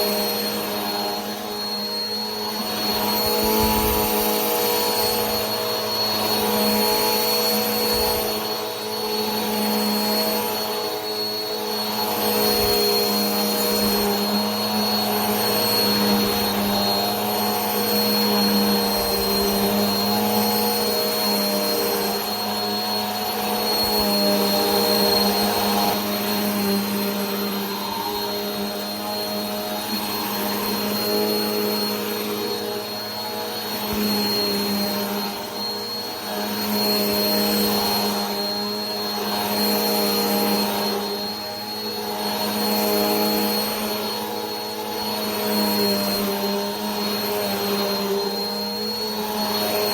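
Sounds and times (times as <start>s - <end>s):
vacuum cleaner running: 0.0s - 49.9s.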